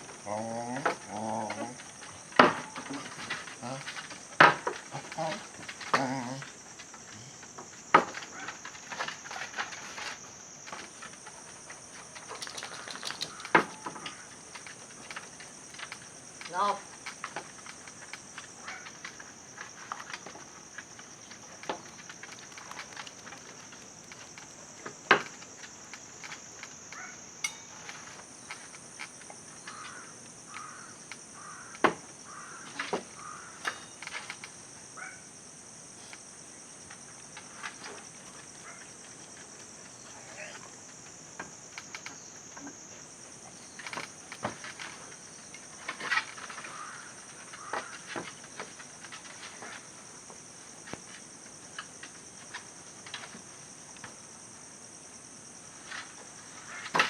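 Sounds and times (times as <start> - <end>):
high-pitched insect chorus: 0.0 - 57.0.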